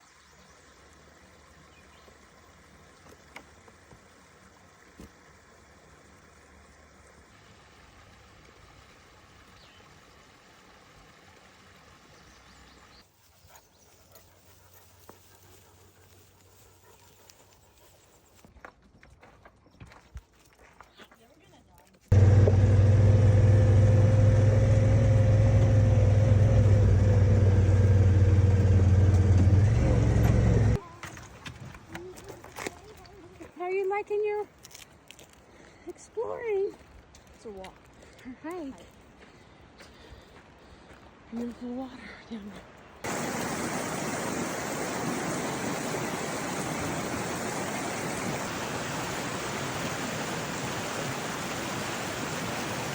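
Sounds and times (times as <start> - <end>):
creek water rushing: 22.1 - 30.8, 42.8 - 52.9
vehicle engine running steadily: 22.1 - 30.8.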